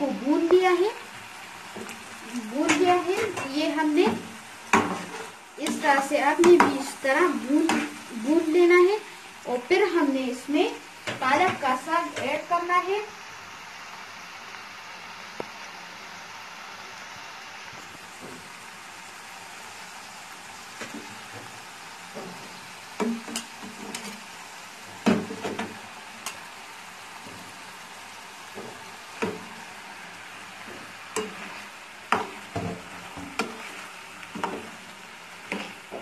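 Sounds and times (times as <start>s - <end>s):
food sizzling in frying pan: 0.0s - 36.0s
utensils knocking and scraping pan: 1.8s - 6.9s, 7.5s - 8.0s, 22.1s - 24.2s, 24.9s - 26.4s, 28.5s - 29.6s, 30.6s - 34.8s, 35.4s - 36.0s.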